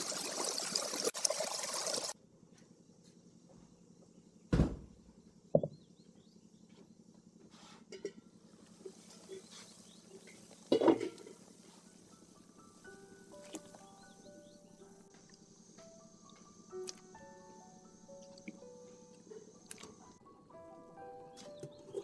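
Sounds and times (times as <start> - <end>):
kitchenware clacking: 10.3 - 11.4
small ticks: 15.1 - 17.2.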